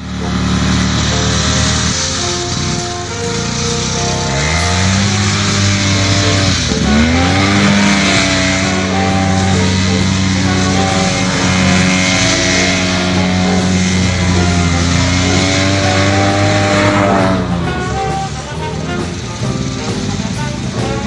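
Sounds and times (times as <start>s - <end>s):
snowmobile engine revving: 0.0s - 21.0s.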